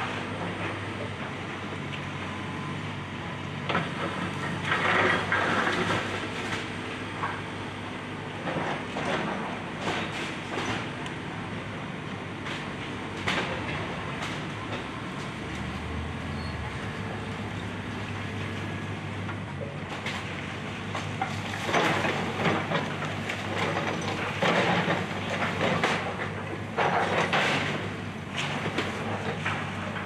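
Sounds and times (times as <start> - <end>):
excavator diesel engine running: 0.0 - 30.0
crunching and crashing demolition: 3.7 - 6.8, 11.7 - 15.8, 18.1 - 30.0.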